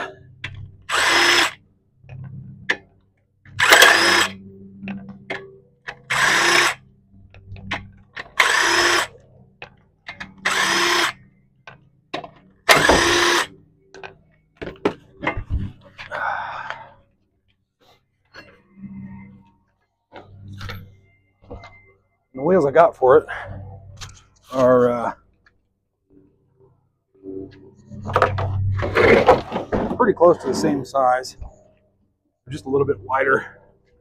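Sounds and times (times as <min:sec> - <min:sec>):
impact wrench bursts: 0:00.9 - 0:01.6, 0:03.6 - 0:04.4, 0:05.9 - 0:06.8, 0:08.2 - 0:09.2, 0:10.4 - 0:11.2, 0:12.6 - 0:13.5.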